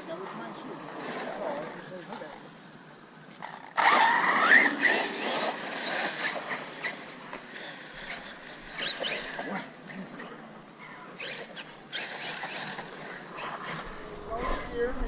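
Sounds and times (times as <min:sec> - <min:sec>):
radio-control car motor whining: 0:03.4 - 0:10.3, 0:11.0 - 0:14.9.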